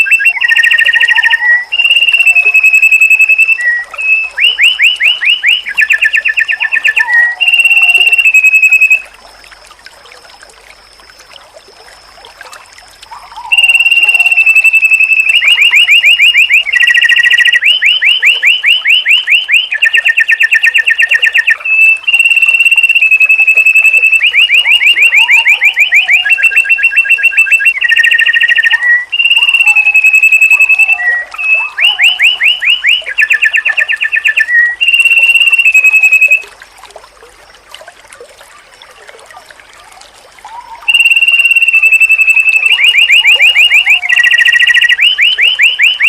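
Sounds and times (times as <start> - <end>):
bird song with rapid trills: 0.0 - 9.0, 13.1 - 36.4.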